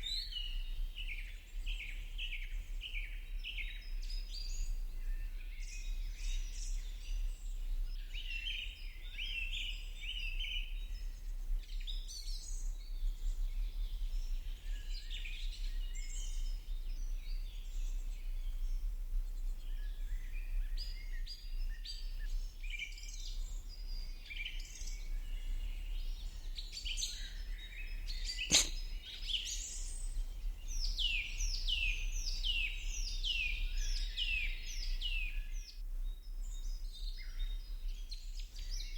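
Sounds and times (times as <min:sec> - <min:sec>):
small birds chirping and singing: 0:22.9 - 0:38.9
sharp click: 0:28.5 - 0:28.8.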